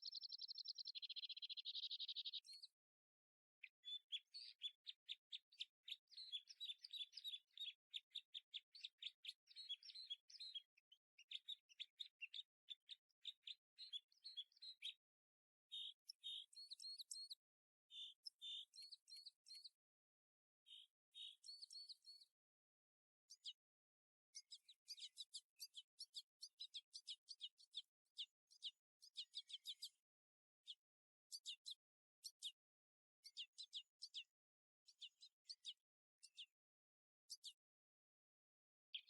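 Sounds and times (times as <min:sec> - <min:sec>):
bird chirping and twittering: 0:00.0 - 0:02.8, 0:03.6 - 0:15.0, 0:15.7 - 0:19.8, 0:20.7 - 0:22.3, 0:24.4 - 0:30.0, 0:33.2 - 0:34.3, 0:34.9 - 0:36.5.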